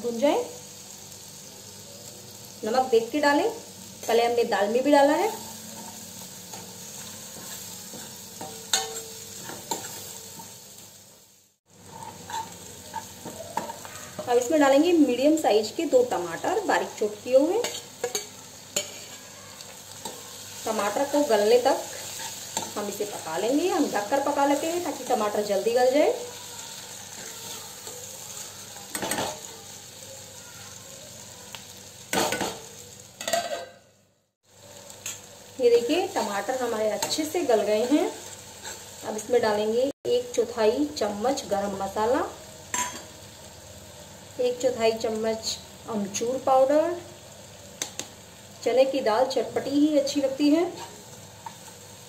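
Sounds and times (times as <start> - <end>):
onions sizzling in a pan: 0.0 - 52.0
metal spoon scraping pan: 5.8 - 10.6, 11.9 - 14.4, 17.6 - 19.3.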